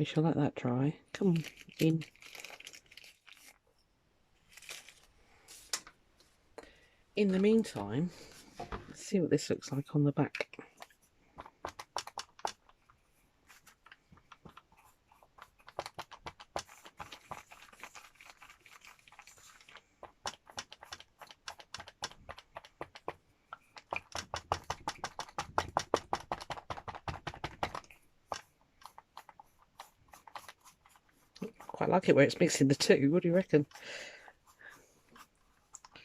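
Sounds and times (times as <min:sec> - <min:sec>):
applicator tapping on book cover: 0:20.2 - 0:29.0.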